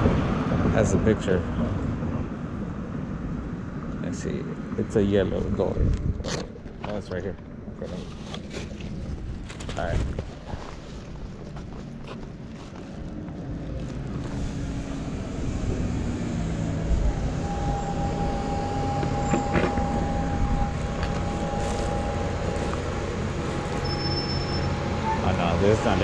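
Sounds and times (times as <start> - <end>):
vehicle engine hum: 0.0 - 26.0
high-pitched whine: 14.3 - 26.0.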